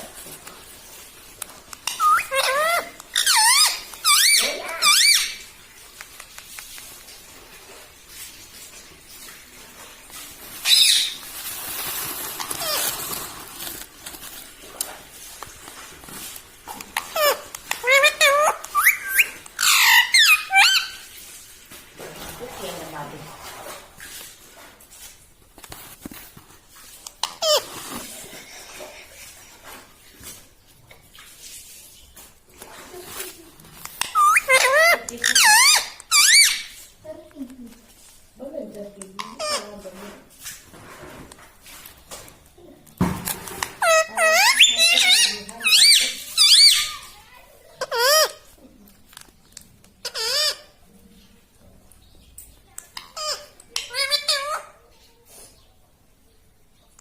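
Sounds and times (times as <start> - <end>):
parrot squeaky calls: 1.8 - 5.5, 10.6 - 11.3, 12.4 - 13.2, 17.0 - 21.1, 27.2 - 27.8, 34.0 - 36.9, 39.2 - 39.7, 43.8 - 47.2, 47.8 - 48.5, 50.0 - 50.8, 53.0 - 54.8.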